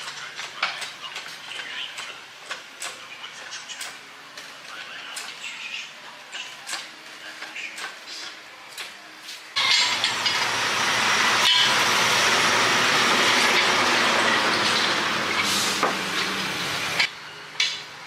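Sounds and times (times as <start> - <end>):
compressed air rushing hiss: 15.3 - 17.0.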